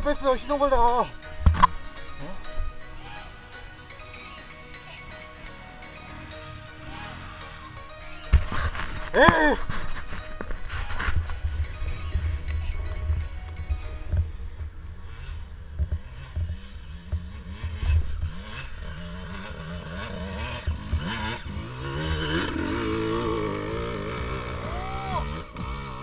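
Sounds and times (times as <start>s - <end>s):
dirt bike engine revving: 14.9s - 26.0s.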